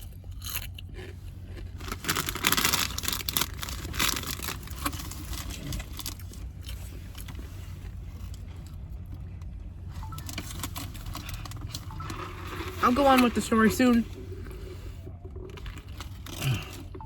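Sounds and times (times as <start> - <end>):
crunching bites of food: 0.0 - 7.3
steady low rumble: 0.0 - 17.0.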